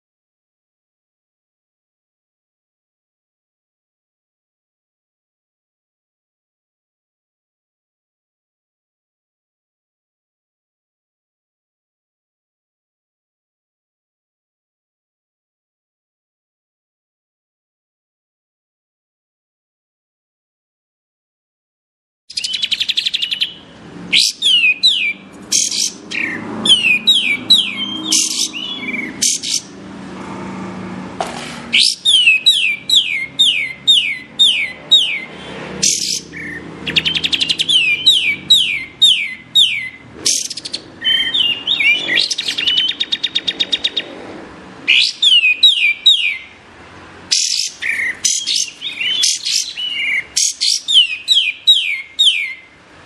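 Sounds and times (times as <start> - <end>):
songbird whistling: 22.3 - 29.7, 31.7 - 44.1, 44.9 - 46.6, 47.3 - 52.8.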